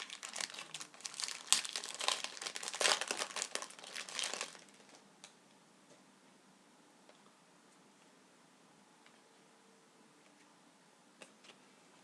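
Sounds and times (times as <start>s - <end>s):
card pack wrapper crinkling: 0.0s - 5.0s.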